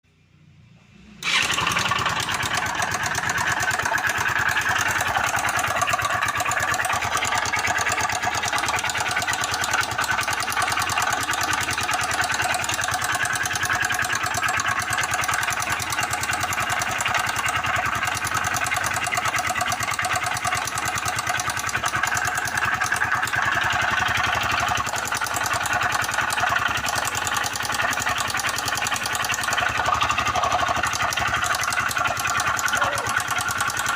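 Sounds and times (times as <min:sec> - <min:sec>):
motorcycle engine with knocking: 0:01.2 - 0:33.9.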